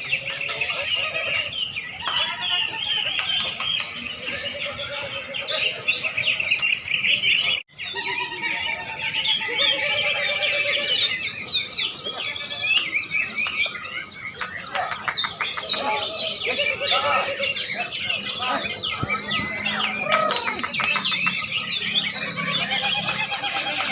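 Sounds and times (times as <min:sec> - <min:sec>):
chorus of songbirds singing: 0:00.0 - 0:23.9.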